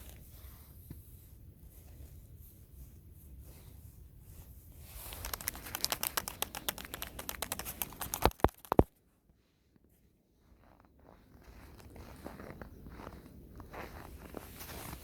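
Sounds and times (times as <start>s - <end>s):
dense crackling and crinkling: 4.2s - 9.0s, 10.4s - 15.0s
sharp snaps: 5.0s - 8.9s.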